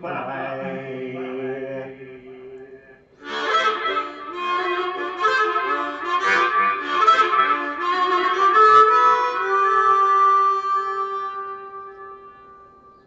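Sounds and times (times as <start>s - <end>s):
blues harmonica playing: 3.2s - 13.0s.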